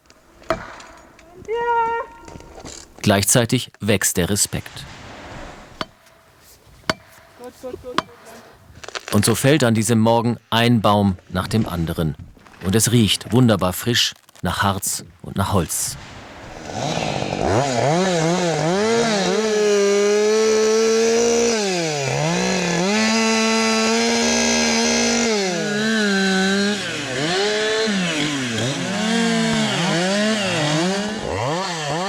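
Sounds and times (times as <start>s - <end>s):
chainsaw revving: 16.5s - 32.0s.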